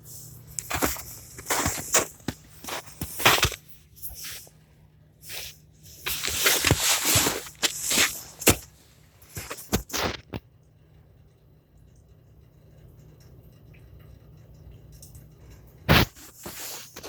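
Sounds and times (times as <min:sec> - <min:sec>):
footsteps crunching in snow: 0:00.6 - 0:04.5, 0:05.3 - 0:10.2, 0:15.9 - 0:17.0.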